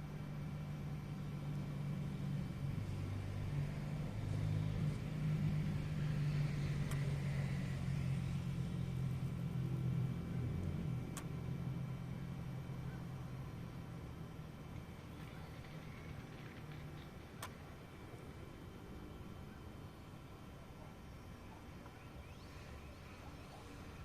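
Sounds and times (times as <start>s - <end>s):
sharp clicks: 15.2s - 17.6s.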